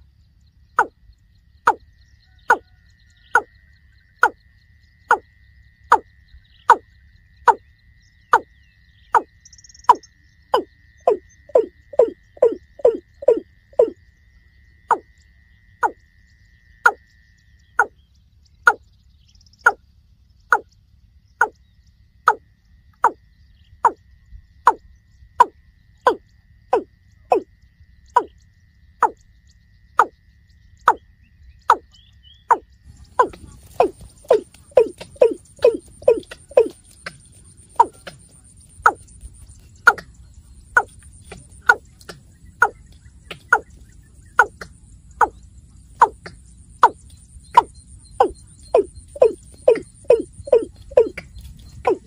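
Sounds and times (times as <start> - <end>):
bird calling hollow notes: 0.8 - 1.0, 1.6 - 3.5, 5.1 - 5.3, 5.9 - 14.0, 15.8 - 16.0, 17.8 - 18.0, 23.0 - 23.2, 24.7 - 28.4, 29.0 - 29.3, 30.0 - 30.2, 30.8 - 52.0.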